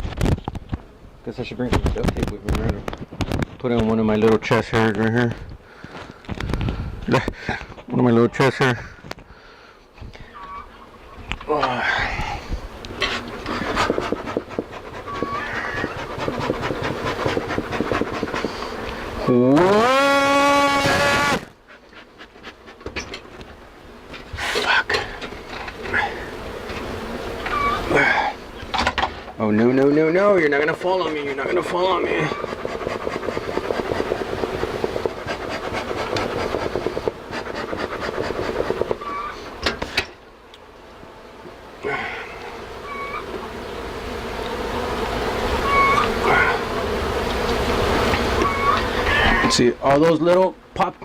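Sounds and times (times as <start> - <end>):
tape crackling on microphone: 0.0 - 0.8, 1.4 - 9.3
rapid rasping and scraping: 12.2 - 28.2, 28.8 - 40.2, 41.9 - 49.7.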